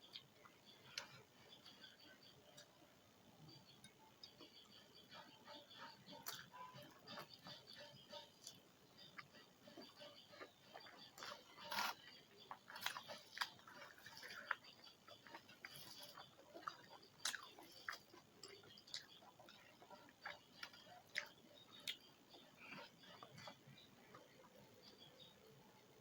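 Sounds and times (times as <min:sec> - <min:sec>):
person chewing food: 0:00.0 - 0:25.6.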